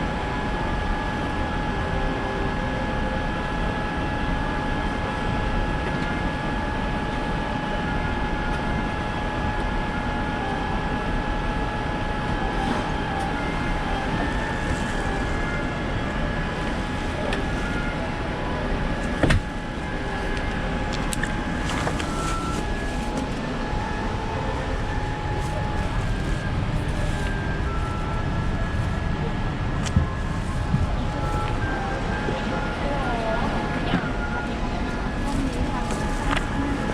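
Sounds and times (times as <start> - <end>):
aircraft cabin engine noise: 0.0 - 36.9
steady whine: 0.0 - 36.9.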